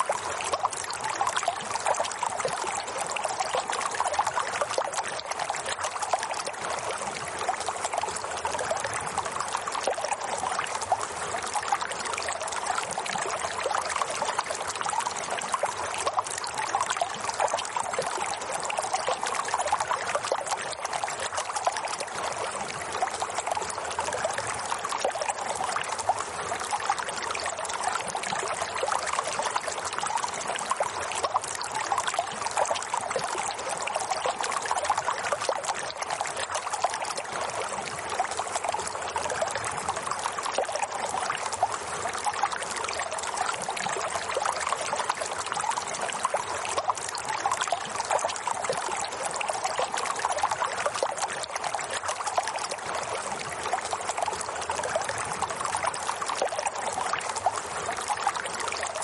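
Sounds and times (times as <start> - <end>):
running water trickling: 0.0 - 59.0.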